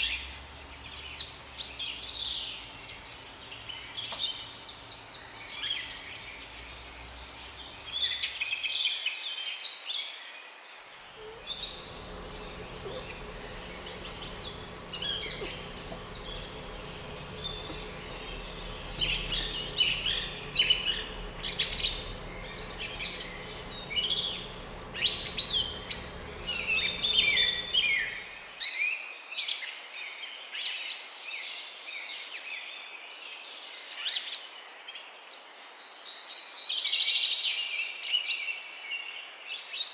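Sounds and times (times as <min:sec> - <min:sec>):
low steady hum: 0:00.0 - 0:08.5, 0:11.2 - 0:28.5
small birds chirping and twittering: 0:00.0 - 0:08.8, 0:11.1 - 0:28.5.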